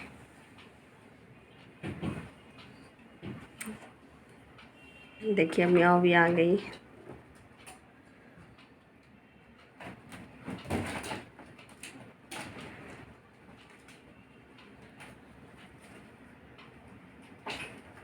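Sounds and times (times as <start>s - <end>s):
kittens rustling and knocking: 1.8s - 2.4s.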